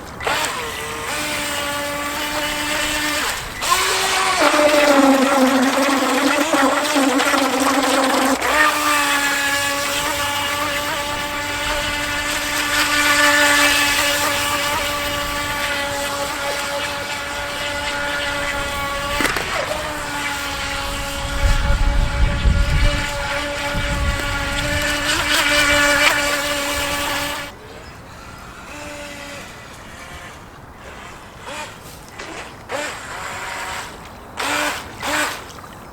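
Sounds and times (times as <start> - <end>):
electric motor whining: 0.0 - 35.6
wind buffeting microphone: 17.0 - 27.4.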